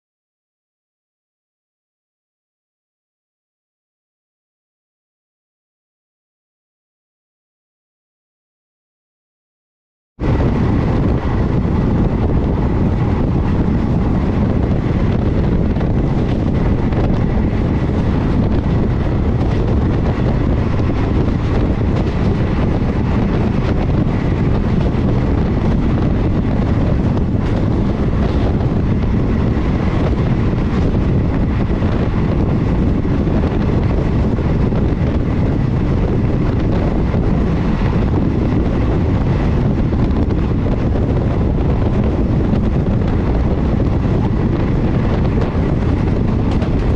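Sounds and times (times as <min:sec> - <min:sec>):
train rumbling at speed: 0:10.2 - 0:46.9
wind buffeting microphone: 0:10.2 - 0:46.9.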